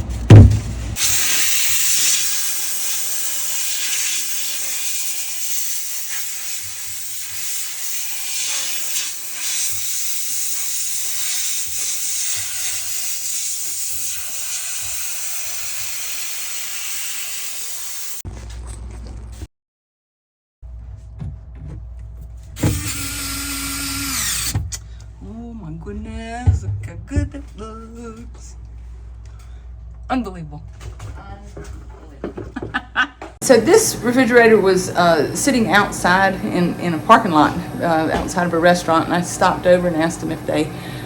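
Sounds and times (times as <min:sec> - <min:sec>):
thump: 0:00.2 - 0:01.0
steamer hissing steam: 0:01.0 - 0:18.2.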